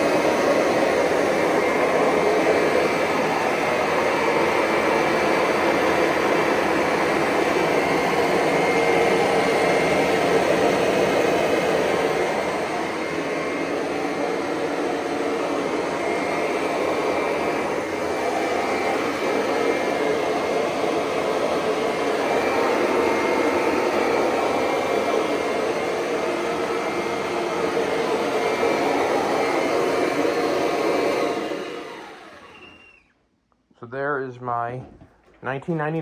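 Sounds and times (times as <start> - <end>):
vacuum cleaner running on carpet: 0.0 - 33.0.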